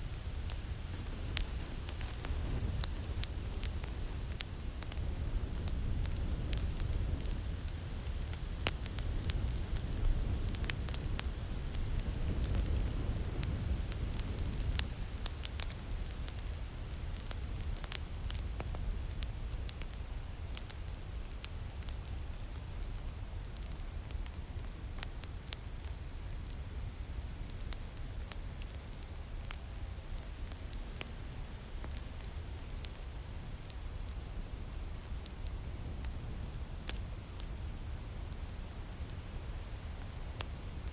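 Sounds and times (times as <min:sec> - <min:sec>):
wind rumble: 0:00.0 - 0:24.6
wood fire crackling and popping: 0:00.0 - 0:40.9.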